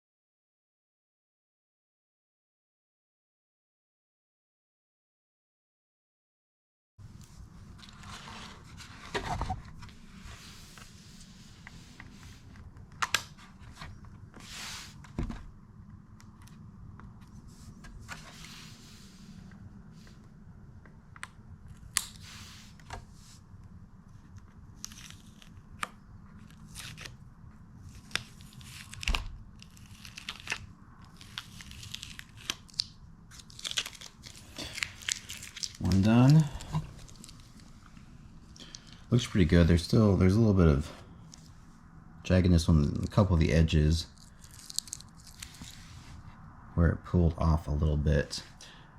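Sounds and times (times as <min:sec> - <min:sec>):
masking tape peeling and tearing: 0:24.8 - 0:27.2, 0:27.9 - 0:37.7, 0:44.2 - 0:45.9.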